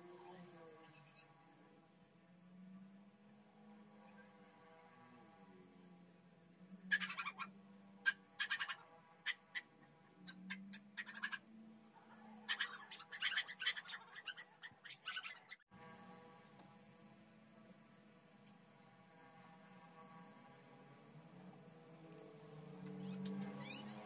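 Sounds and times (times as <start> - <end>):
small bird chirping: 0.3 - 2.1, 6.9 - 15.6, 22.8 - 24.0.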